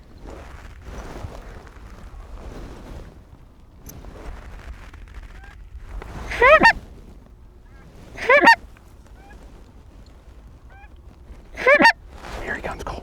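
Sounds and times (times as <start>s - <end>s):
distant goose honks: 6.2s - 6.8s, 7.7s - 9.4s, 10.6s - 12.8s
goose honking: 6.3s - 6.8s, 8.2s - 8.6s, 11.6s - 12.8s.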